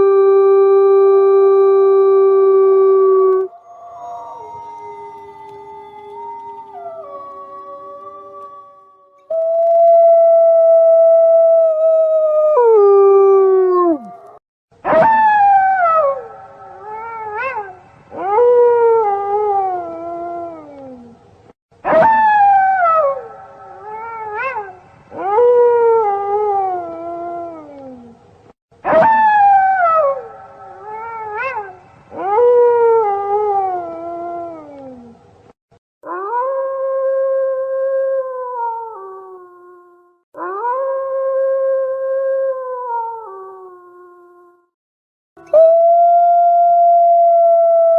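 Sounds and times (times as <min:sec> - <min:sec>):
wolves howling: 0:02.7 - 0:10.9, 0:11.5 - 0:14.4.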